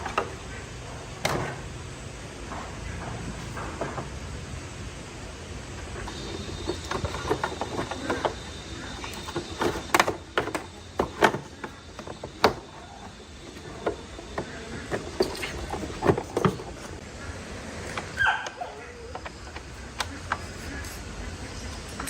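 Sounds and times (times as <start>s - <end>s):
low background noise: 0.0s - 22.0s.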